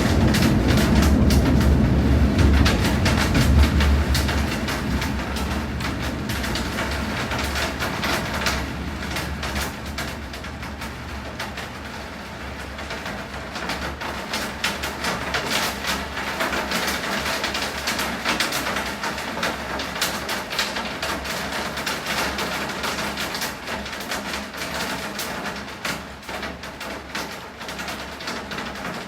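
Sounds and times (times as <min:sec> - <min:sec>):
low steady rumble: 0:00.0 - 0:13.0
rain falling: 0:00.0 - 0:29.0.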